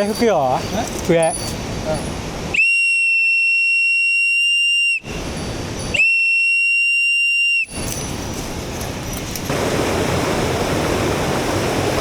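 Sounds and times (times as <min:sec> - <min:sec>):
whistle blasts: 0:02.5 - 0:05.2, 0:05.9 - 0:07.9
stream water rushing: 0:09.5 - 0:12.0.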